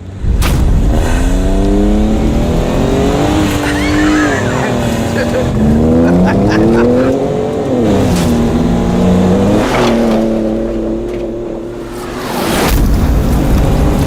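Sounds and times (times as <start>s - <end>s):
engine revving hard: 0.3s - 11.0s.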